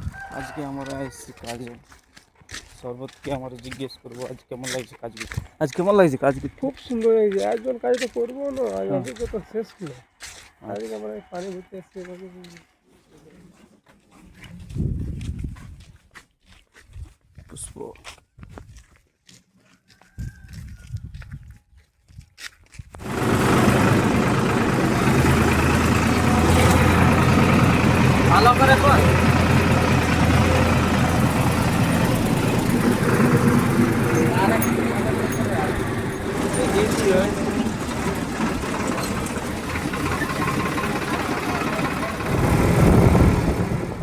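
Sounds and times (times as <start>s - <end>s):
tractor diesel engine running: 23.0s - 44.0s.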